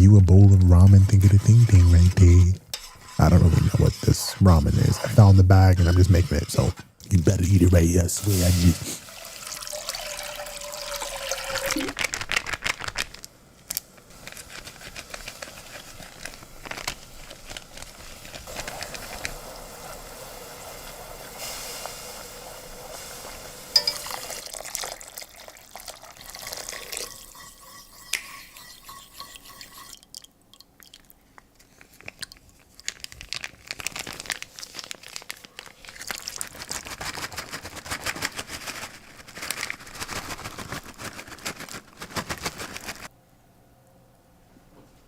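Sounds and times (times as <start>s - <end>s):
packaging crunching and crackling: 11.7s - 19.3s, 31.6s - 43.1s.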